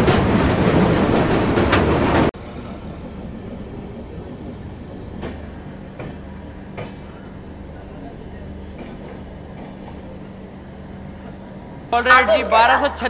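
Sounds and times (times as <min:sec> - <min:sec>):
passenger train running: 0:00.0 - 0:13.0
wheels clacking over rail joints: 0:00.0 - 0:13.0.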